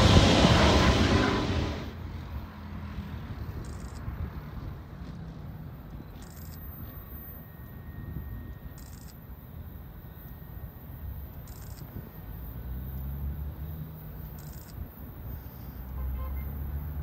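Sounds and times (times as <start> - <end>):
loud rushing noise: 0.0 - 2.4
distant diesel freight train rumble: 0.0 - 3.6.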